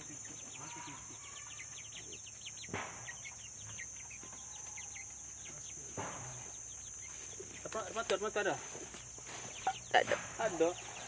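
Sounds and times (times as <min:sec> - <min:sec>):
birds chirping rapidly: 0:00.0 - 0:11.0
sharp knock: 0:02.7 - 0:03.2, 0:06.0 - 0:06.3.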